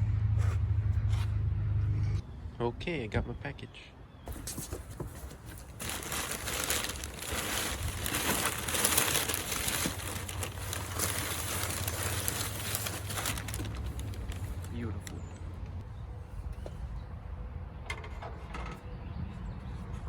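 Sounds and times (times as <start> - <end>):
packing material crinkling: 4.3 - 14.8.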